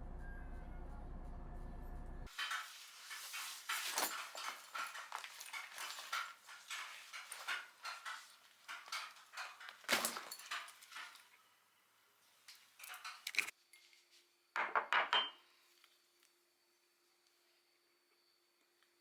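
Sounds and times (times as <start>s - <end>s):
household objects clicking and clinking: 2.3s - 11.4s, 12.5s - 13.6s
objects clattering: 2.3s - 11.5s, 12.3s - 13.5s.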